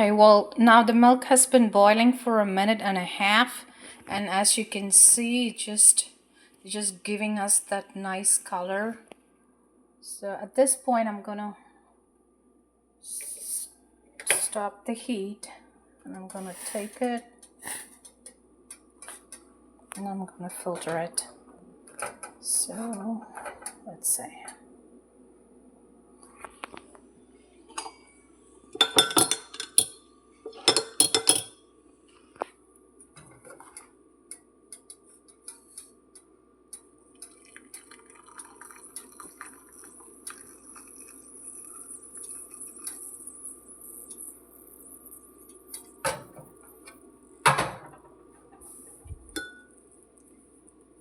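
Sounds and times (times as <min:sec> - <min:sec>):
low steady hum: 0:00.0 - 0:51.0
liquid pouring trickle: 0:37.1 - 0:46.8
metal clinking against glass: 0:49.4 - 0:49.7.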